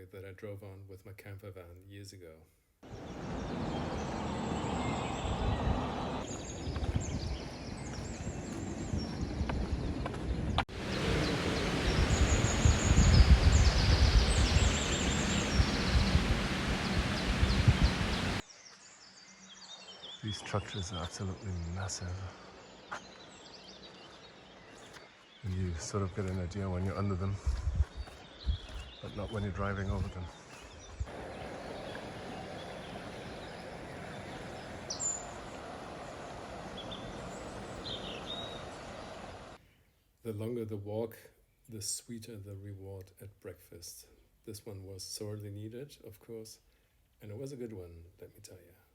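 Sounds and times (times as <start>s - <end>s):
small birds chirping: 2.8s - 40.2s
low outdoor rumbling: 2.9s - 6.3s, 10.7s - 18.4s, 31.0s - 39.6s.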